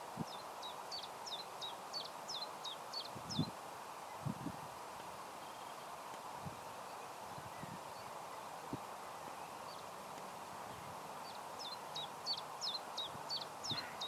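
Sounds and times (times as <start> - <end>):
faint steady hiss: 0.0 - 14.0
small bird chirping: 0.2 - 3.5, 10.8 - 14.0.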